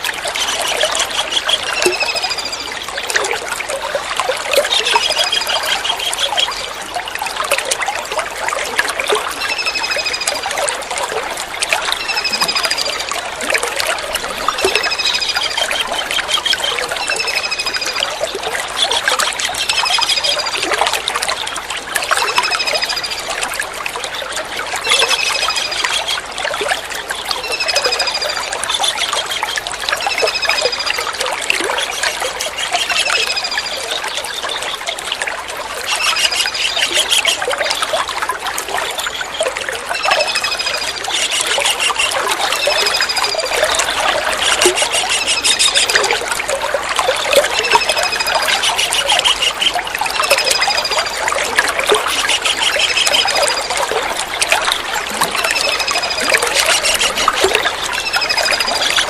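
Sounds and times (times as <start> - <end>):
water trickling: 0.0 - 59.0
kingfisher calling: 35.8 - 37.8, 40.0 - 46.2, 47.6 - 51.2, 51.8 - 53.7, 55.4 - 59.0
fast chattering trills: 35.9 - 37.5, 40.0 - 46.2, 47.6 - 54.7, 55.3 - 59.0.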